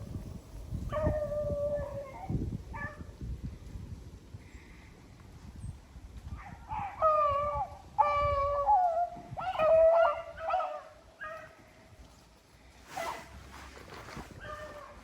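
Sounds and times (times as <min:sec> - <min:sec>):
hounds baying: 0:06.4 - 0:11.7.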